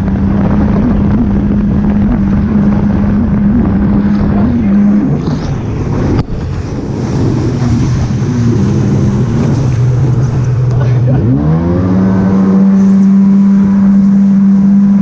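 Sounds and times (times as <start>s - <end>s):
jet ski engine humming: 0.0s - 15.0s
wind on microphone: 0.0s - 15.0s
water spray rushing: 3.9s - 14.9s.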